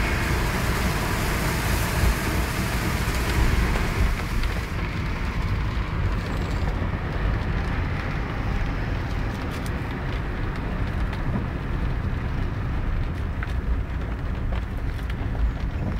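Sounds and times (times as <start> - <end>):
floodwater rushing: 0.0 - 4.8.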